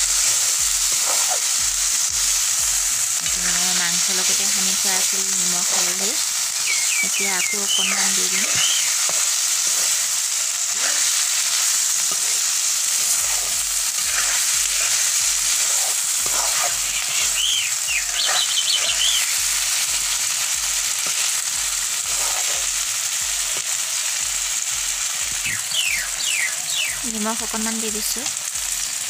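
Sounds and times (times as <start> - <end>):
food sizzling in hot oil: 0.0 - 29.0
metal spatula stirring: 0.2 - 1.5, 7.7 - 22.8.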